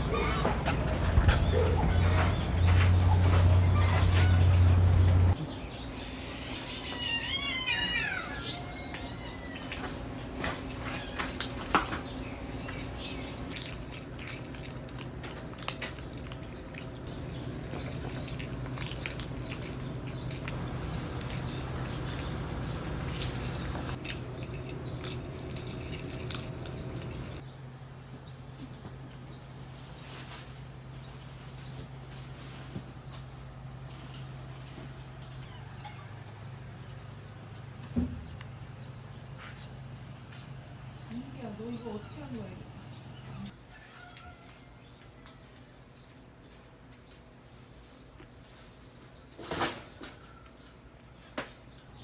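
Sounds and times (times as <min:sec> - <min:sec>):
cat meowing: 0:03.7 - 0:05.3, 0:06.5 - 0:09.8.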